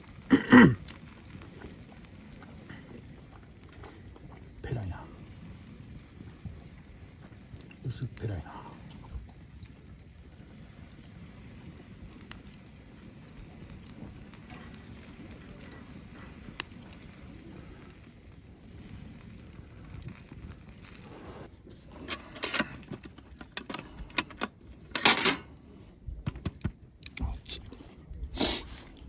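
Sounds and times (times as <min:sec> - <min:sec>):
campfire crackling: 0:00.0 - 0:29.0
sharp clicks and knocks: 0:26.2 - 0:27.2.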